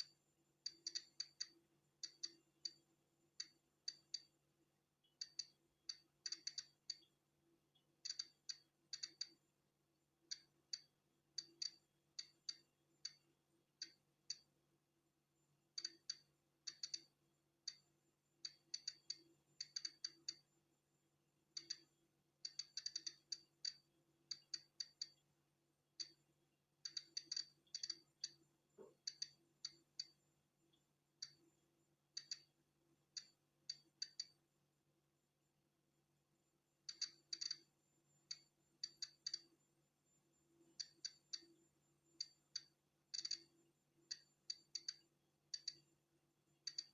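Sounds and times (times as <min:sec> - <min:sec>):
geiger counter clicking: 0:00.0 - 0:04.4, 0:05.0 - 0:07.1, 0:08.0 - 0:09.4, 0:10.3 - 0:14.5, 0:15.8 - 0:20.5, 0:21.5 - 0:25.2, 0:26.0 - 0:26.2, 0:26.8 - 0:30.2, 0:31.2 - 0:31.5, 0:32.1 - 0:34.4, 0:36.8 - 0:39.6, 0:40.7 - 0:45.9, 0:46.6 - 0:46.9
faint steady hum: 0:00.0 - 0:46.9.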